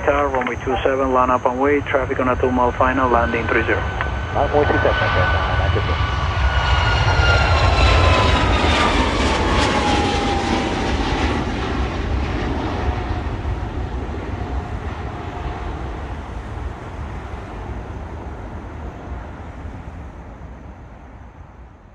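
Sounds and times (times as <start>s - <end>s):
jet airliner passing: 0.0s - 21.9s.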